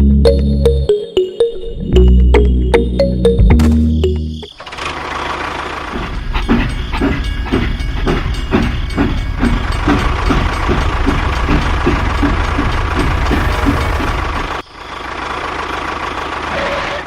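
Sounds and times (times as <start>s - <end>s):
engine chugging: 2.0s - 17.0s.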